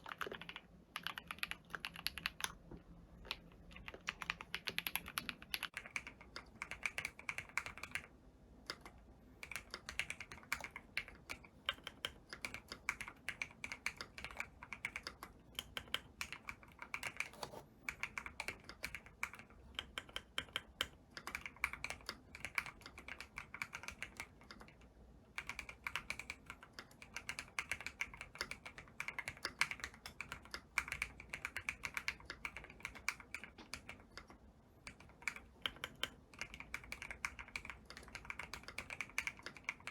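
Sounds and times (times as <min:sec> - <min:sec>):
keyboard typing clicks: 0:00.0 - 0:02.6, 0:03.2 - 0:08.1.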